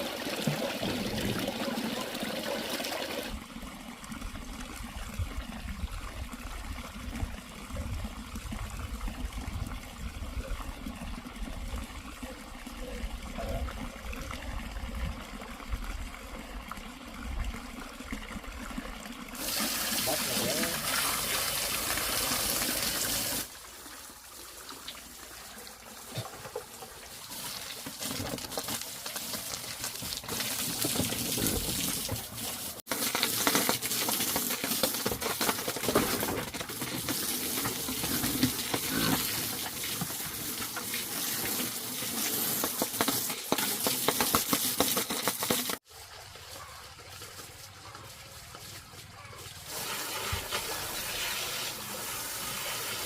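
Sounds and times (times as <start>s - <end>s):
running splashing water: 0.0s - 53.0s.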